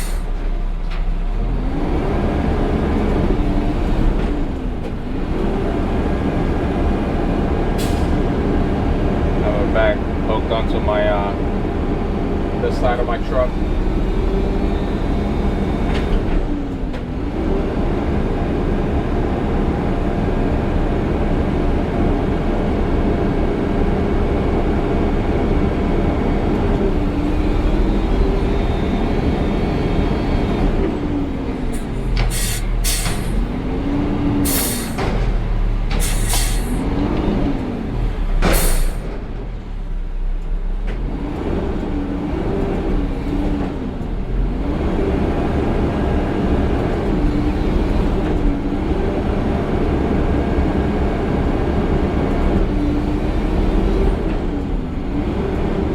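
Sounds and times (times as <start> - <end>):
diesel engine revving: 0.0 - 55.9
sharp hissing or banging: 31.8 - 33.4, 35.9 - 36.8, 38.5 - 39.1.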